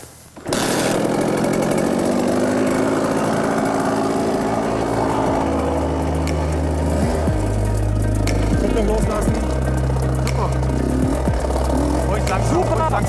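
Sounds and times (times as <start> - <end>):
motocross bike engine idling: 0.4 - 13.0
deep low hum: 2.7 - 13.0.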